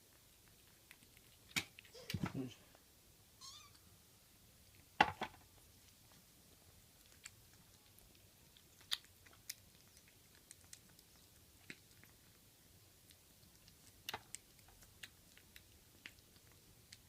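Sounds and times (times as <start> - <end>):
kitten chewing crunches: 0.0 - 2.6, 4.3 - 17.0.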